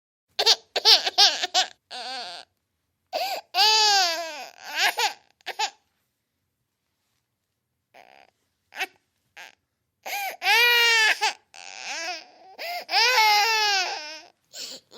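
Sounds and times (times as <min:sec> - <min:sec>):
baby crying: 0:00.4 - 0:02.5, 0:03.1 - 0:05.8, 0:08.0 - 0:14.9.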